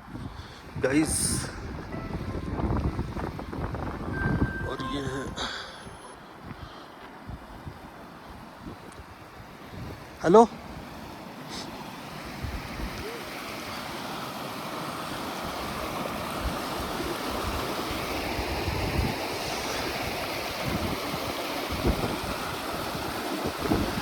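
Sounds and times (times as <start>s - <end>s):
wind blowing on microphone: 0.0s - 10.9s, 16.4s - 24.0s.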